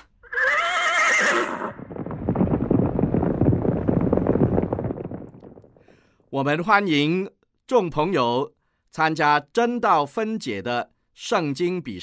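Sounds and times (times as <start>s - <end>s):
horse whinnying: 0.2s - 1.8s.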